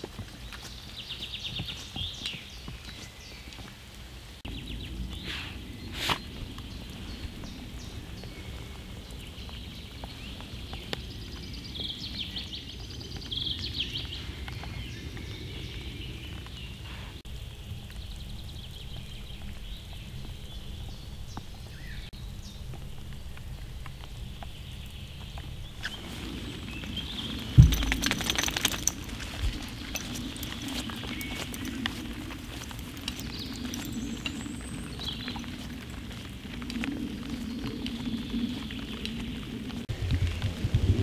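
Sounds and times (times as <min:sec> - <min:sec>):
rain pattering on needles: 0:06.4 - 0:41.0.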